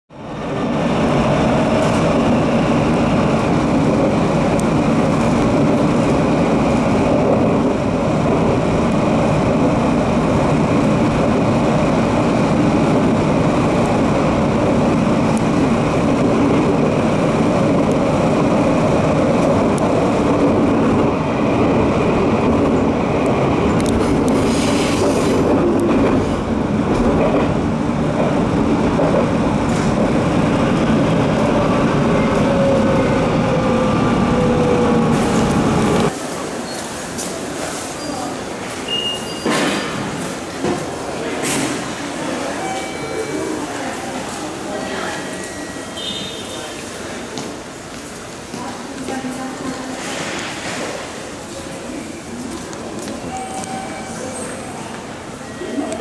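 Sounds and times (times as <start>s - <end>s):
train wheels rumbling on rail: 0.1s - 56.0s
high wheel squeal: 53.2s - 54.8s.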